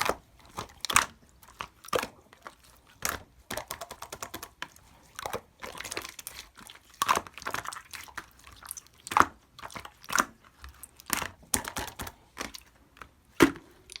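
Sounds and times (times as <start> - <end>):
slime crackling and popping: 13.7 - 14.0.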